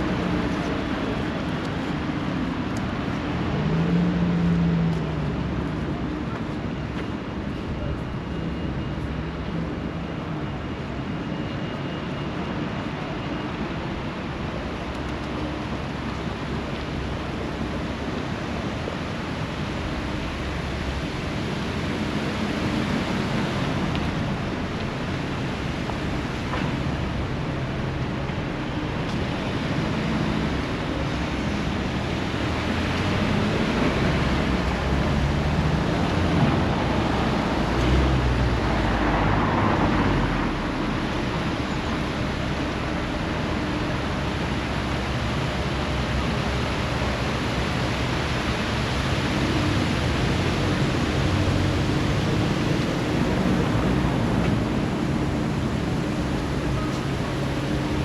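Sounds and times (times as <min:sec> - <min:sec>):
wind: 0:00.0 - 0:58.0
sea surf: 0:19.0 - 0:58.0.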